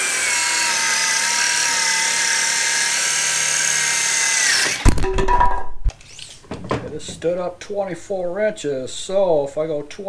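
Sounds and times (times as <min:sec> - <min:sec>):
electric power saw cutting board: 0:00.0 - 0:05.0.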